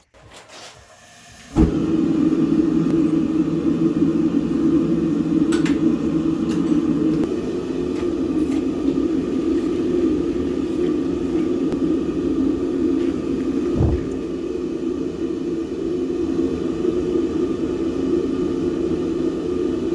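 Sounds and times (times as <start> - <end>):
machine running: 13.6 - 14.4.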